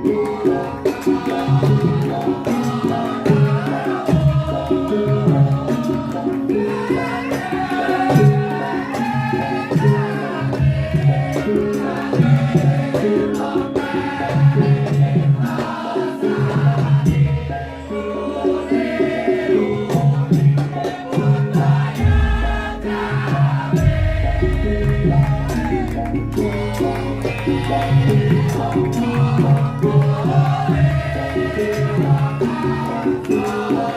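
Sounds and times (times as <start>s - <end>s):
gamelan ensemble music: 0.0s - 33.9s
deep low tone: 22.0s - 28.1s
person singing: 22.0s - 33.9s.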